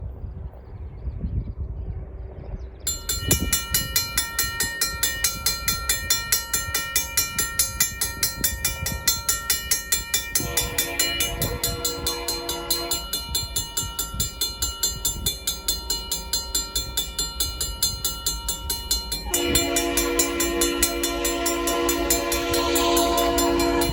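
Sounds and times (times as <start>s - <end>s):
mechanical crossing bell ringing: 2.9s - 23.9s
locomotive horn chord: 10.4s - 13.3s, 19.2s - 23.9s.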